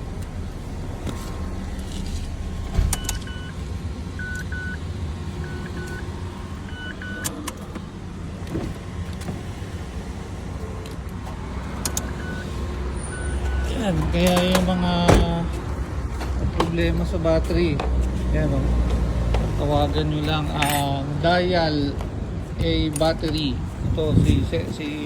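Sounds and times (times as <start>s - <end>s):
vehicle engine humming: 0.0s - 25.0s
short electronic beeps: 3.0s - 3.6s, 4.2s - 4.8s, 6.7s - 7.3s, 12.1s - 13.7s
sharp clicks: 11.8s - 12.1s.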